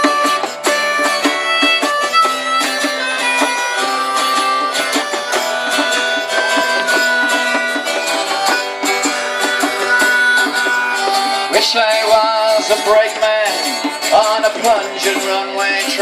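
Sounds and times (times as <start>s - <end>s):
melody of held notes: 0.0s - 12.4s
strummed acoustic strings: 0.0s - 16.0s.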